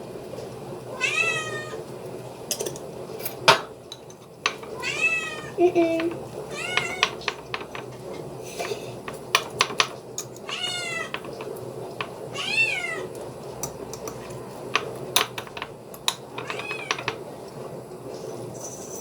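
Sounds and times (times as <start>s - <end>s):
cat meowing: 0.9s - 1.8s, 4.8s - 5.6s, 6.5s - 7.2s, 10.4s - 11.2s, 12.3s - 13.1s, 16.4s - 17.1s.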